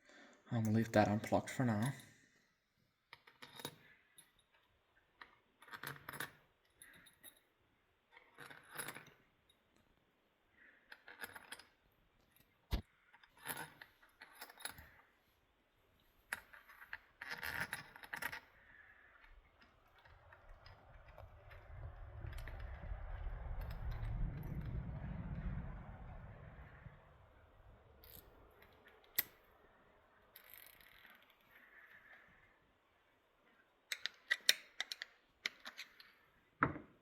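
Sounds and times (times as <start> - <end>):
metallic clinks of tools and bolts: 13.2 - 15.0.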